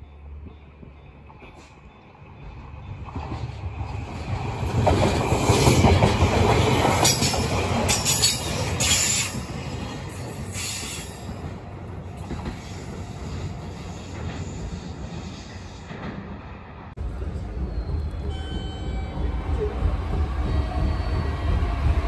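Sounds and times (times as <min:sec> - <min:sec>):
train wheels rumbling on rails: 0:00.0 - 0:22.0
high-pitched wheel squeals: 0:17.6 - 0:19.5.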